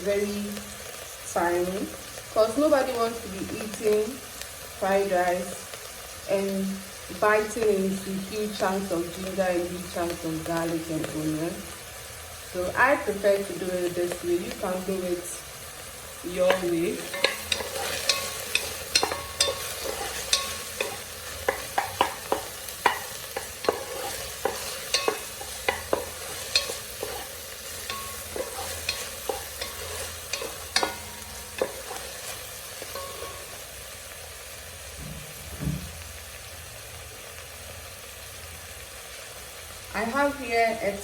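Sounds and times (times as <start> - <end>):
meat sizzling in hot oil: 0.0 - 41.0
utensil knocking and scraping pan: 16.4 - 33.6.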